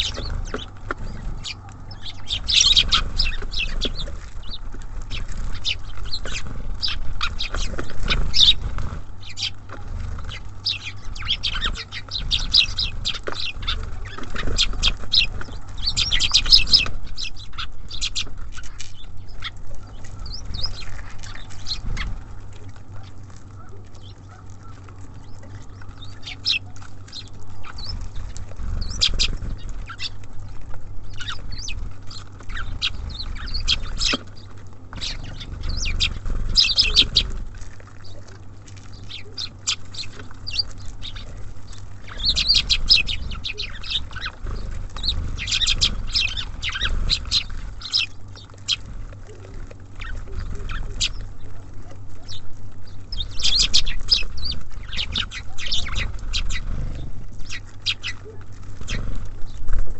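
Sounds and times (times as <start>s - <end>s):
birds pecking and tapping: 0.0s - 59.9s
small songbirds chirping: 0.0s - 59.9s.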